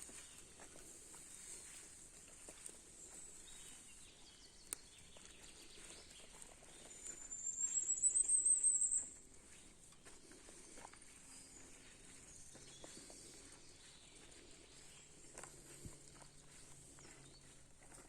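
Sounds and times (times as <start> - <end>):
faint ticks and rustles: 0.0 - 18.0
small bird high trill: 7.2 - 9.1.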